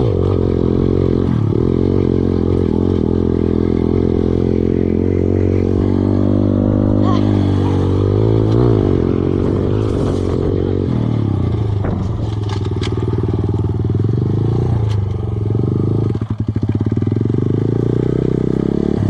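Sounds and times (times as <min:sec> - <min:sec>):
dirt bike engine running: 0:00.0 - 0:19.0
sharp clicks and clatters: 0:11.7 - 0:13.7.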